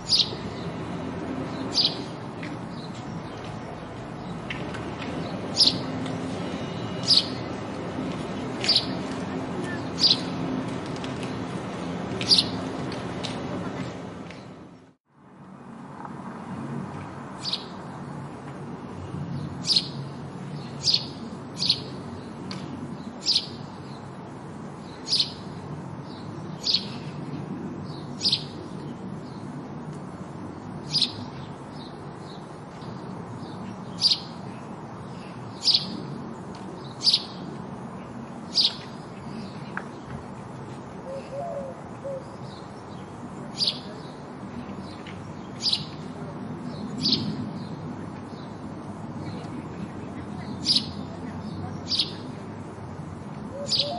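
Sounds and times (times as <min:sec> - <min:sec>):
sparrow chirping: 0:00.0 - 0:03.5, 0:05.2 - 0:07.6, 0:08.4 - 0:10.5, 0:12.2 - 0:12.7, 0:17.4 - 0:17.8, 0:19.3 - 0:24.1, 0:24.8 - 0:27.2, 0:27.8 - 0:29.5, 0:30.8 - 0:36.2, 0:36.8 - 0:37.6, 0:38.4 - 0:39.6, 0:41.1 - 0:44.2, 0:44.8 - 0:48.6, 0:50.2 - 0:52.4, 0:53.5 - 0:53.9.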